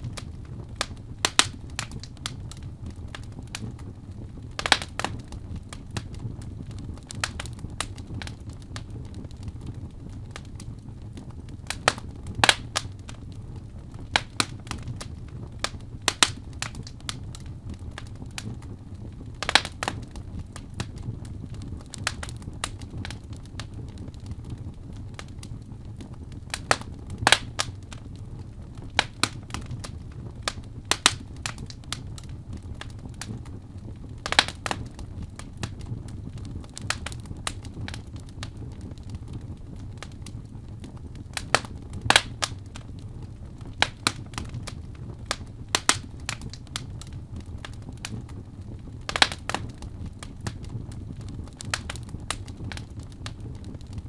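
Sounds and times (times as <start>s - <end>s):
fire crackling and popping: 0.0s - 54.0s
loud fire snap: 0.0s - 54.0s.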